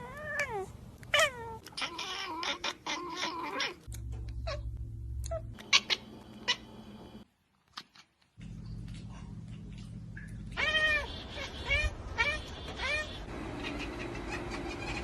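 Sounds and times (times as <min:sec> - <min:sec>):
cat yowling: 0:00.0 - 0:03.9.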